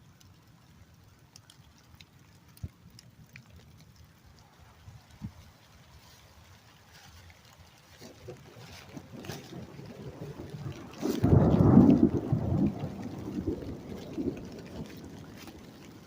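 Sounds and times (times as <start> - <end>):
raindrops ticking: 0.0 - 16.0
steady rain: 0.0 - 16.0
thunder clap and rumble: 8.0 - 16.0.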